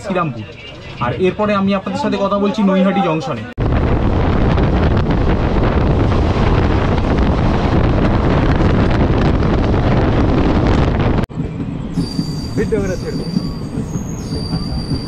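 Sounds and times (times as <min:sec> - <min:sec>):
moving train rumble: 0:03.4 - 0:15.0
wind on microphone: 0:03.6 - 0:12.4.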